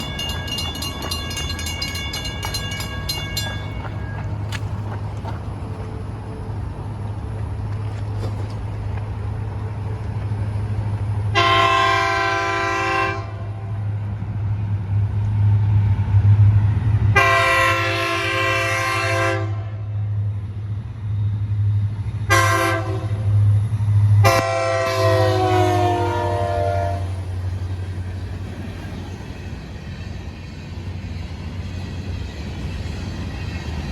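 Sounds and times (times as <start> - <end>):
rapid bell ringing: 0.0 - 4.4
diesel locomotive rumbling past: 0.0 - 33.9
train air horn blasts: 11.3 - 13.7, 17.1 - 19.9, 22.3 - 23.4, 24.2 - 27.4.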